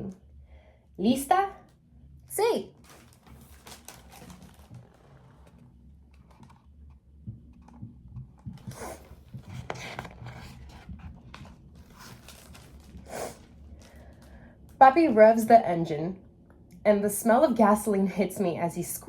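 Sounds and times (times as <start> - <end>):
low steady room hum: 0.0 - 19.0
paper rustling as page turns: 2.8 - 5.6, 9.0 - 14.2.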